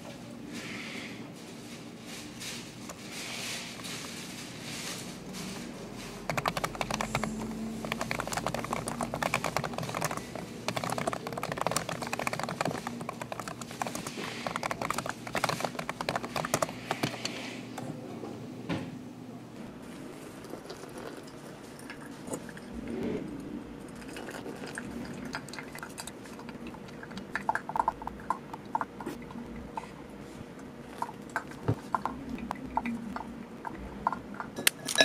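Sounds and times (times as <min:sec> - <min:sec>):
fast typing on keyboard: 0:06.2 - 0:17.4.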